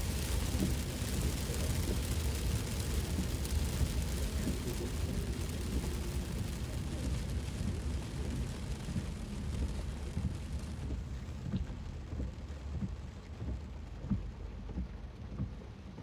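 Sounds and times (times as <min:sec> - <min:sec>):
heavy rain on a car: 0:00.0 - 0:16.0
low road rumble: 0:00.0 - 0:16.0.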